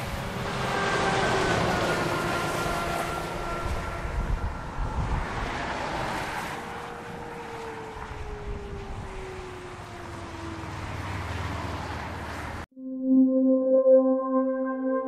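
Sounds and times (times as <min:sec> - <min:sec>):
passing vehicle engine and road noise: 0:00.0 - 0:12.7
wind gusting on microphone: 0:03.2 - 0:10.0.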